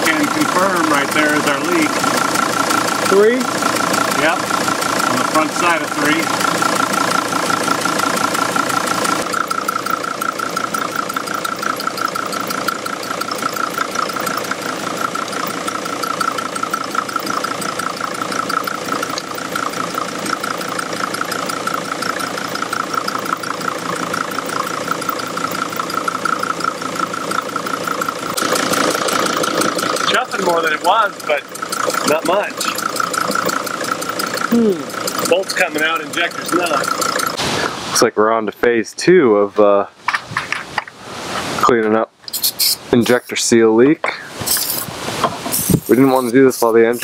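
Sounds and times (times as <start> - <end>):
diesel engine idling clatter: 0.0 - 38.8, 39.5 - 47.0.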